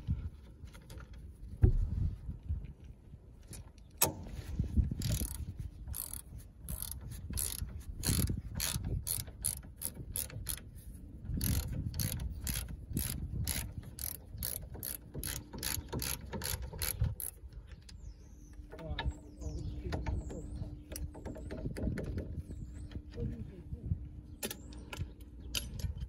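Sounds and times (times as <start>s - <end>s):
ratchet wrench clicking: 5.0s - 10.6s, 11.4s - 17.4s.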